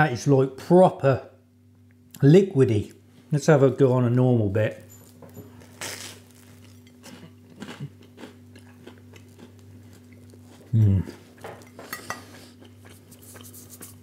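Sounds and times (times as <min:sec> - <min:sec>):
person chewing crunchy toast: 0:05.6 - 0:14.0
person humming mm: 0:10.7 - 0:11.2.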